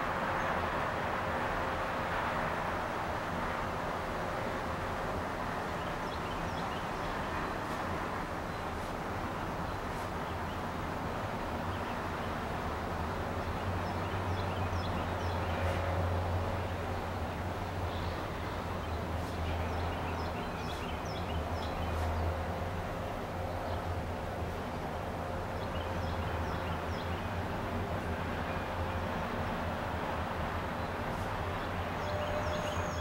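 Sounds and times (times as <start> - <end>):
small birds chirping: 17.9 - 22.2.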